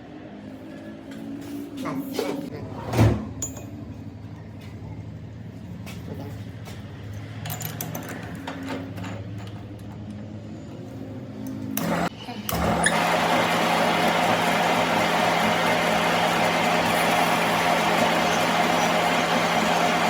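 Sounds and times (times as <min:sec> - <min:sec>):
motor humming: 0:11.8 - 0:20.0.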